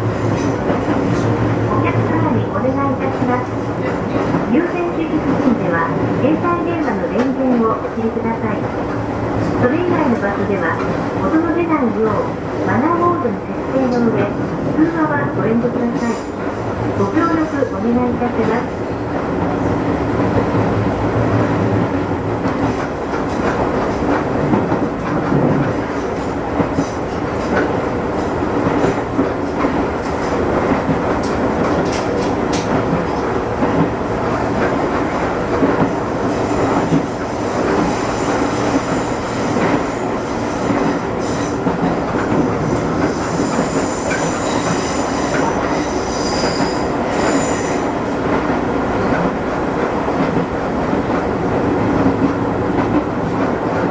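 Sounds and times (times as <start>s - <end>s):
rail clicks: 0.0s - 53.9s
train wheels rumbling on rails: 0.0s - 53.9s
high wheel squeal: 43.1s - 47.9s.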